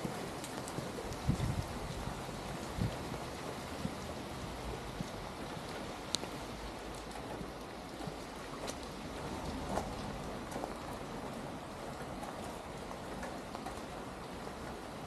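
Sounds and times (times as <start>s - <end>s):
rain falling on wet street: 0.0s - 15.0s
sharp raindrop ticks: 0.0s - 15.0s.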